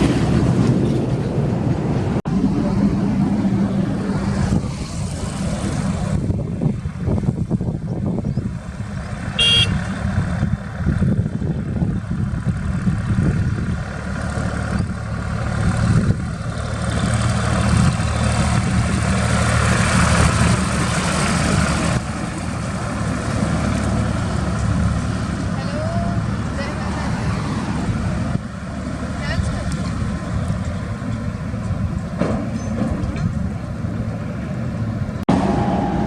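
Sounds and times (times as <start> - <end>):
vehicle passing close: 0.0 - 7.6, 8.5 - 32.2, 33.5 - 36.0
highway traffic: 0.0 - 36.0
short horn toot: 9.4 - 9.9.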